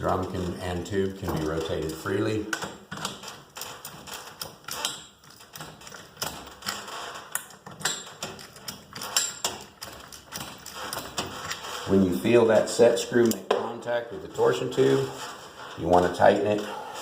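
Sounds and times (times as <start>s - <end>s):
metallic clicks and knocks: 0.0s - 11.8s.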